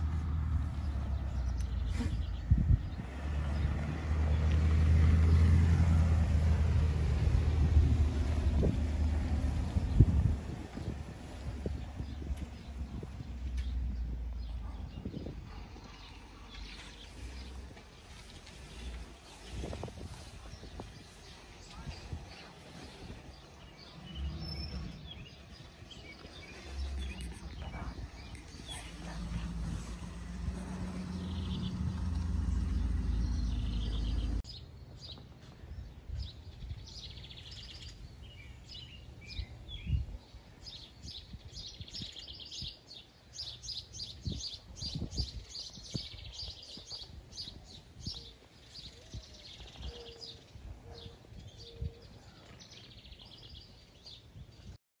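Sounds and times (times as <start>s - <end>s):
small birds chirping: 0.0s - 5.6s, 7.5s - 54.8s
loud low rumble: 26.5s - 34.4s.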